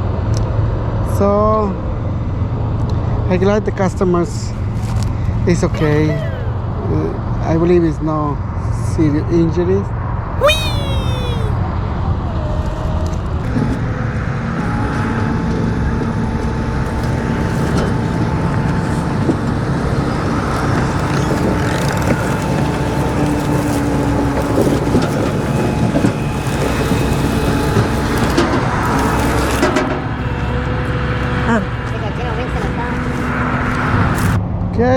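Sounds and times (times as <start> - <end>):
vehicle engine and road noise: 0.0 - 9.8, 10.9 - 34.9
faint whining tones: 13.3 - 34.4.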